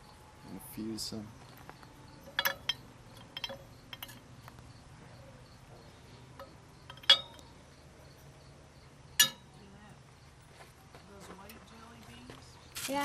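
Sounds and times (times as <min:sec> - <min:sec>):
glass bulbs clinking: 0:01.5 - 0:04.6, 0:06.3 - 0:07.6, 0:09.2 - 0:09.5.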